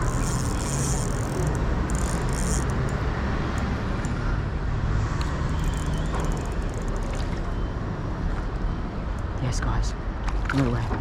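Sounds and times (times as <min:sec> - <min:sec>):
faint ticks: 0:00.0 - 0:03.0
road traffic rumble: 0:00.0 - 0:10.3.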